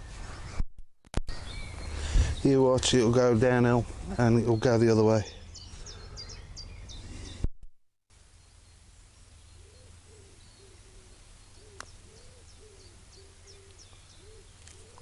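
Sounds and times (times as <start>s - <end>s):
small birds chirping: 1.3s - 7.5s, 8.2s - 15.0s
pigeon cooing: 9.6s - 15.0s.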